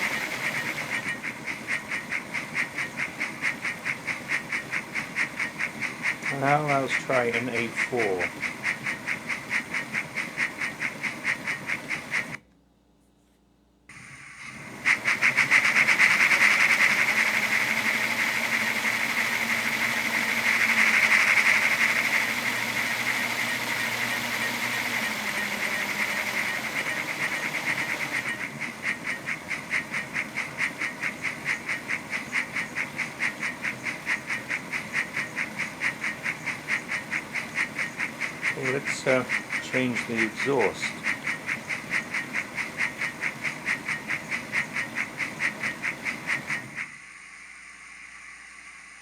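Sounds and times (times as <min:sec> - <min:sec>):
steam locomotive exhaust chuffs: 0:00.0 - 0:12.4, 0:13.9 - 0:49.0
loud steam hiss: 0:38.5 - 0:41.1.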